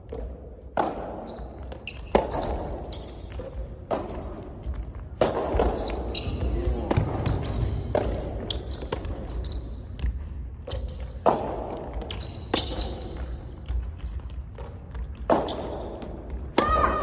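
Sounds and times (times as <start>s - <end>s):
ball bouncing on court: 0.0s - 17.0s
tennis ball hit by rackets: 0.1s - 8.2s
shoe squeaks: 1.2s - 3.4s, 5.8s - 6.5s, 7.3s - 11.2s, 12.1s - 13.4s, 14.0s - 14.5s, 15.4s - 15.9s.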